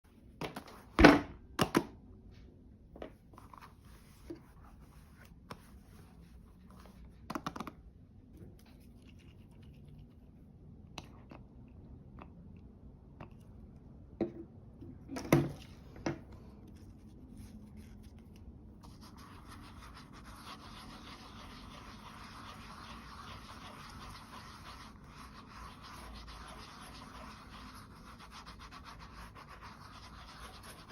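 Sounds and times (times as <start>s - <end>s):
scratchy rubbing: 18.8s - 30.9s.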